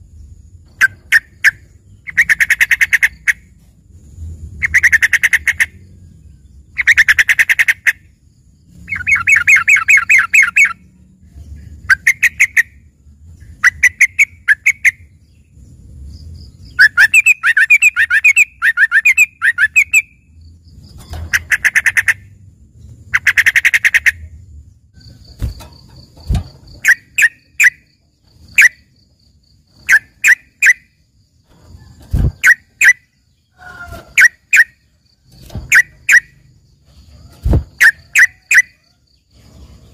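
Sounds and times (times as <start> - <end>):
bulbul singing trilled phrases: 8.8 - 12.8, 13.4 - 22.4, 26.7 - 31.0.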